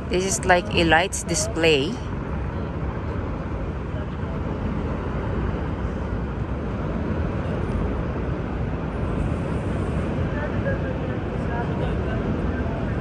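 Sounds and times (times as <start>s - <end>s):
low rumble of city traffic: 0.0s - 13.0s.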